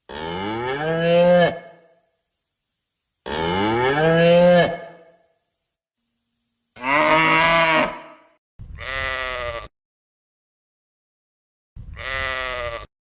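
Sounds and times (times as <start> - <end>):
sheep bleating: 6.8 - 9.7, 11.8 - 12.9.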